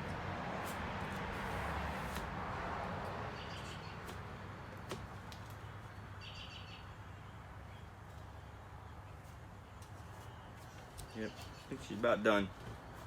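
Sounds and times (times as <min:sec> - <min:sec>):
high bird chirps: 0:06.2 - 0:06.9.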